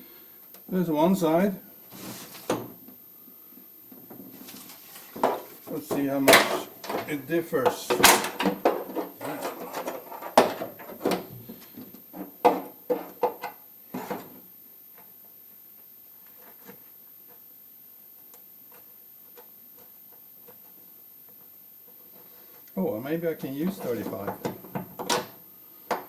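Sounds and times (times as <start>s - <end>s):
parts clunking and rattling: 7.9s - 11.3s.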